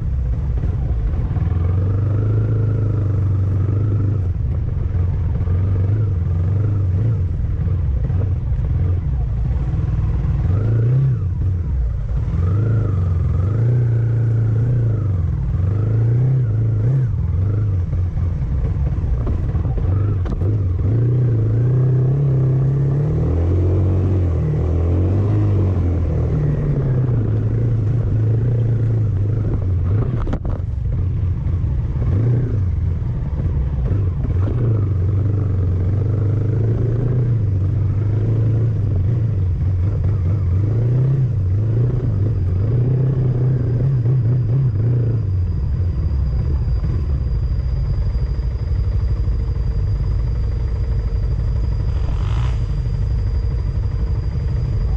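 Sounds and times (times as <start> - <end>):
vehicle engine droning: 0.0 - 54.9.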